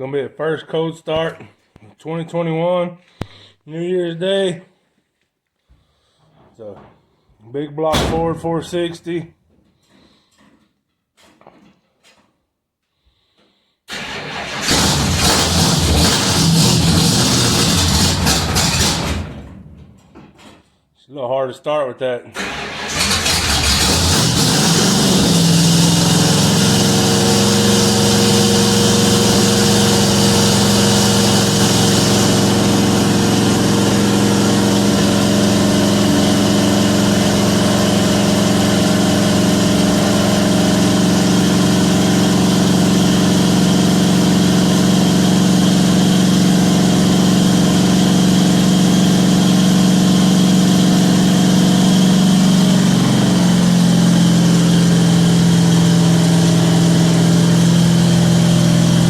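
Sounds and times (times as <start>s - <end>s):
engine running: 13.9s - 19.9s, 22.4s - 59.0s.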